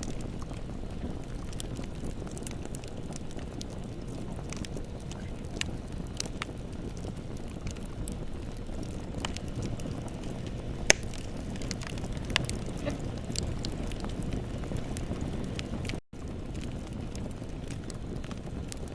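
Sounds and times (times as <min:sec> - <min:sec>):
fire crackling and popping: 0:00.0 - 0:18.9
flames rushing: 0:00.0 - 0:18.9.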